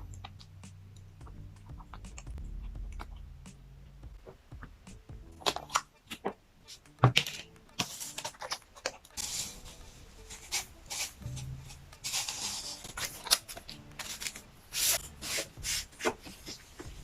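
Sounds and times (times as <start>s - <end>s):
packaging rustling: 7.2s - 11.4s, 12.0s - 16.8s.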